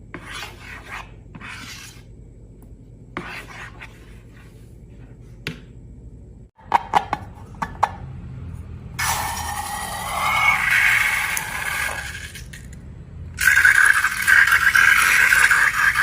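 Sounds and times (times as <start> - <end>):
scraping and rubbing: 0.2 - 2.1.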